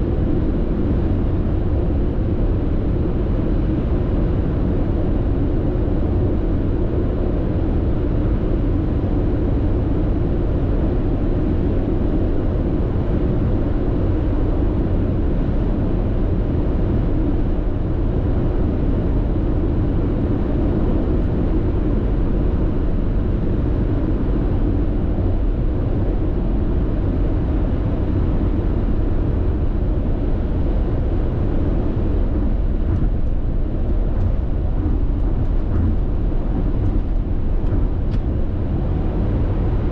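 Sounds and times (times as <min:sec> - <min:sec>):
road and tyre noise inside car: 0:00.0 - 0:39.9.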